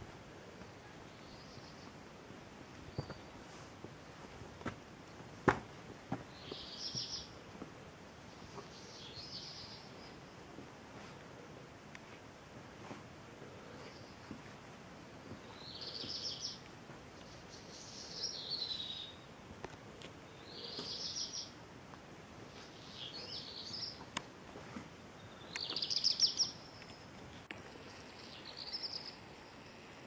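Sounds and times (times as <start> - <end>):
outdoor background noise: 0.0 - 30.0
songbird singing: 0.4 - 2.1, 2.7 - 3.6, 6.2 - 7.5, 8.1 - 10.6, 15.3 - 19.4, 20.0 - 21.6, 22.5 - 24.3, 25.1 - 30.0.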